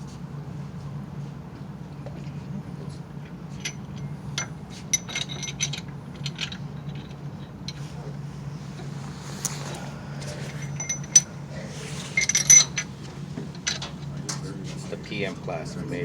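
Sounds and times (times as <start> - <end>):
steady low hum: 0.0 - 16.0
metal tools clinking: 4.9 - 7.8, 9.4 - 11.4, 12.1 - 12.9.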